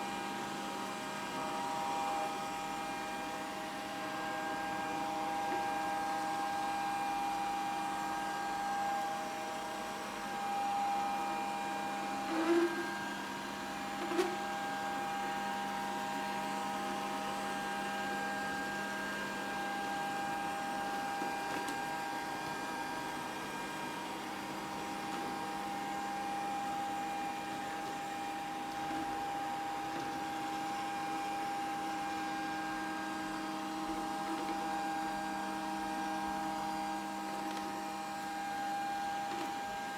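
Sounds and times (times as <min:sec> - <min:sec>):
robot vacuum motor hum: 0:11.0 - 0:23.3, 0:24.0 - 0:39.9.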